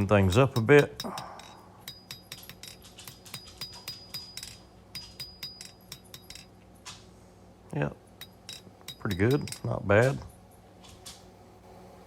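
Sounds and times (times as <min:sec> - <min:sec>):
hammer blows on steel over anvil: 0:00.0 - 0:06.5.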